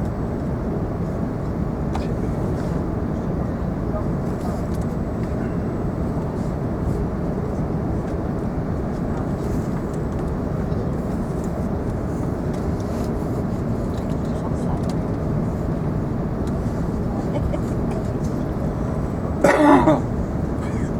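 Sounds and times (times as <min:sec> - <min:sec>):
aircraft cabin rumble: 0:00.0 - 0:20.9.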